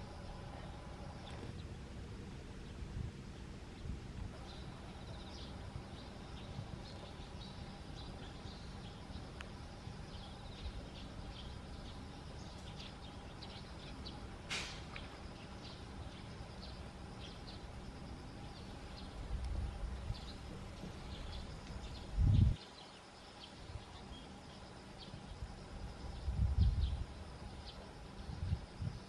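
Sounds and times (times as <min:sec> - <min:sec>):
low outdoor rumble: 0:00.0 - 0:22.6, 0:23.3 - 0:29.0
birds chirping: 0:00.0 - 0:25.5
sharp call or click: 0:14.5 - 0:15.0.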